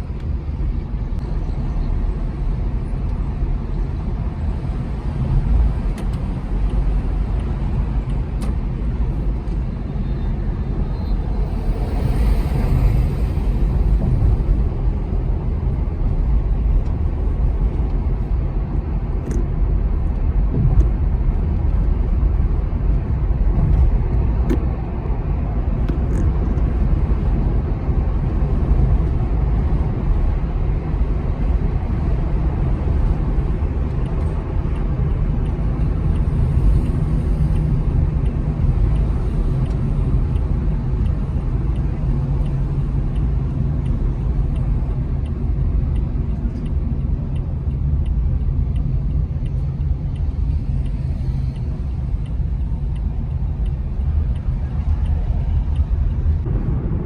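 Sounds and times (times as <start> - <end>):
tires rumbling on road: 0.0 - 57.0.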